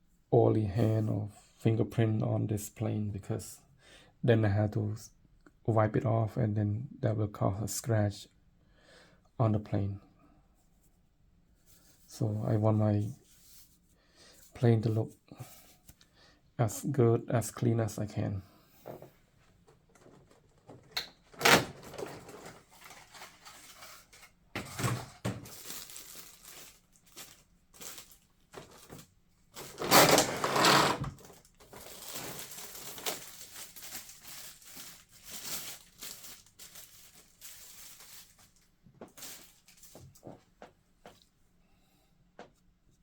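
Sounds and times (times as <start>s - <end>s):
packaging rustling and crinkling: 19.9s - 40.5s.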